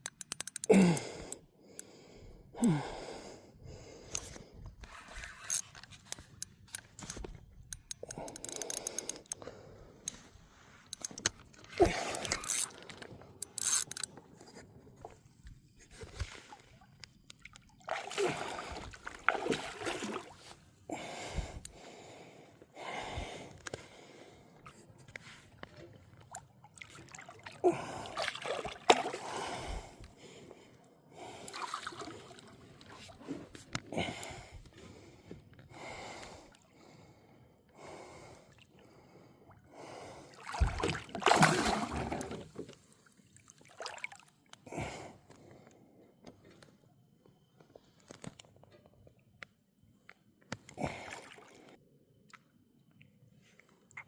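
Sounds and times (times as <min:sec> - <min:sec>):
person gasping and breathing heavily: 0:00.5 - 0:04.7, 0:27.6 - 0:28.4, 0:33.8 - 0:36.5
water splashing around kayak: 0:15.9 - 0:20.7, 0:24.7 - 0:30.0, 0:31.2 - 0:33.7, 0:40.2 - 0:44.5.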